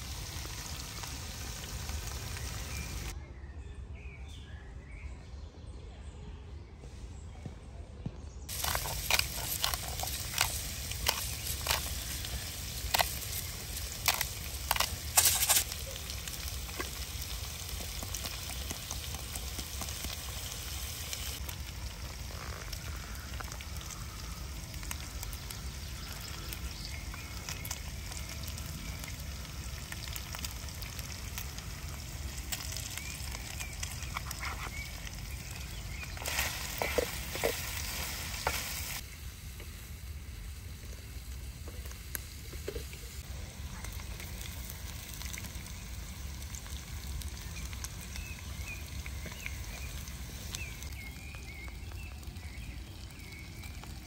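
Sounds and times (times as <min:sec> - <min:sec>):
food sizzling in a pan: 0:00.0 - 0:03.1, 0:08.5 - 0:54.0.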